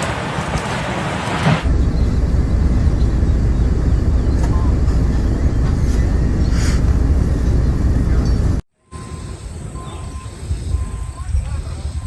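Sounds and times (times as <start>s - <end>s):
loud low rumble: 1.6s - 8.6s.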